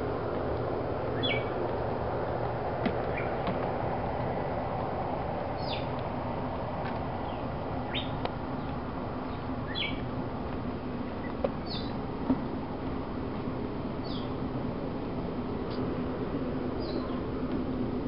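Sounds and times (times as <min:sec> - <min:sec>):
steady background hiss: 0:00.0 - 0:18.0
birds chirping: 0:01.1 - 0:01.6, 0:02.9 - 0:03.7, 0:05.4 - 0:06.1, 0:07.1 - 0:12.1, 0:13.7 - 0:14.5, 0:16.6 - 0:17.4.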